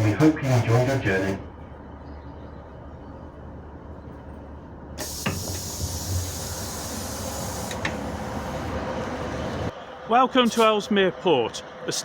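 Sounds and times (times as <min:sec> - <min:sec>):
diesel train engine hum: 0:00.0 - 0:12.0
compressed air hissing: 0:05.0 - 0:08.6.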